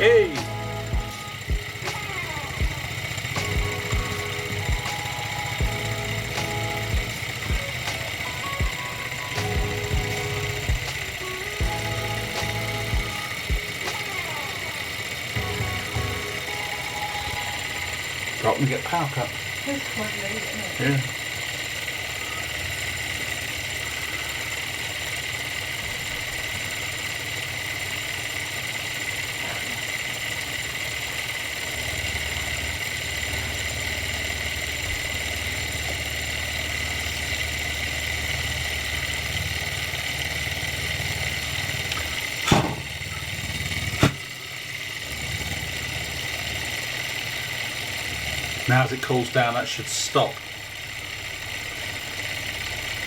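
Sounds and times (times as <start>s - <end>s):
stirling engine humming: 0.0s - 53.0s
sharp knocks: 44.0s - 44.2s.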